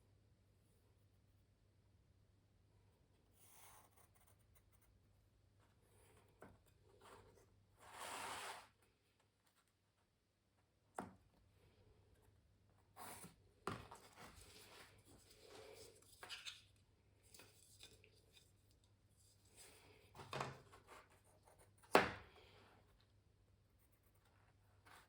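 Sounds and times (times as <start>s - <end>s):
pencil scratching on canvas: 3.4s - 4.9s.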